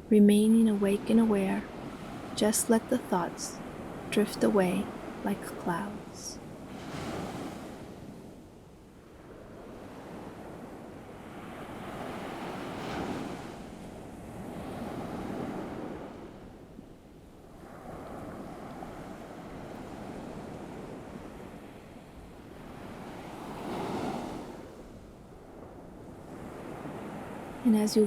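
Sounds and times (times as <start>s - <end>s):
ocean waves washing onto shore: 0.0s - 28.0s.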